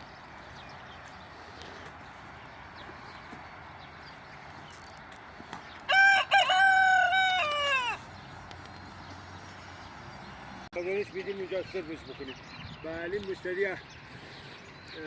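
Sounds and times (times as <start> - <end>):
rooster crowing: 5.9 - 8.1.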